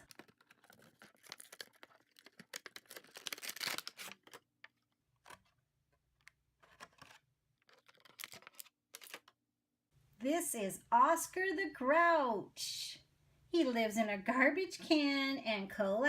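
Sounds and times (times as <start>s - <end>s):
packaging crinkling and tearing: 0.0s - 5.6s, 6.2s - 9.3s.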